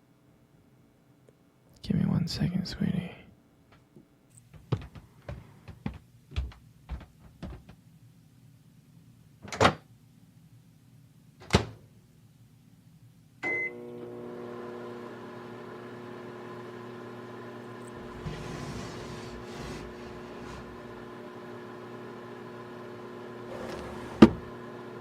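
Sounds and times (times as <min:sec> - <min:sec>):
microwave oven humming: 0:13.4 - 0:25.0.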